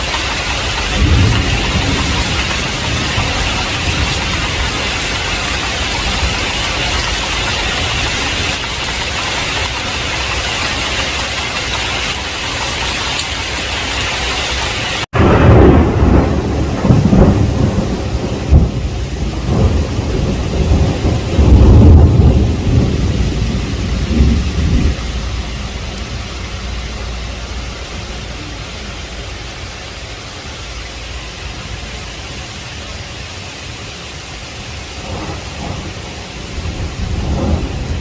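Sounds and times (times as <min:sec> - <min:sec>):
rolling thunder: 0:00.0 - 0:14.1, 0:15.1 - 0:29.5, 0:34.6 - 0:38.0
heavy rain hiss: 0:00.0 - 0:38.0.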